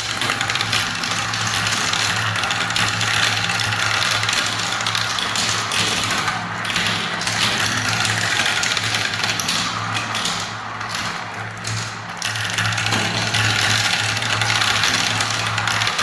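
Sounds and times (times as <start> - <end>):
marbles clattering down track: 0.0 - 16.0.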